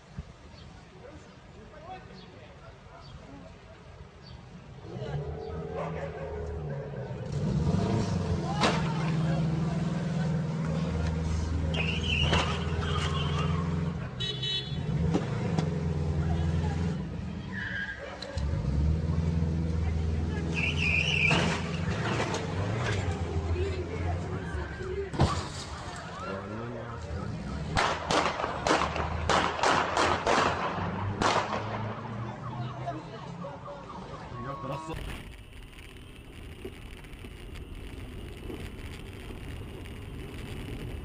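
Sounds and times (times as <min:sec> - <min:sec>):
sharp clicks: 0:34.9 - 0:41.0.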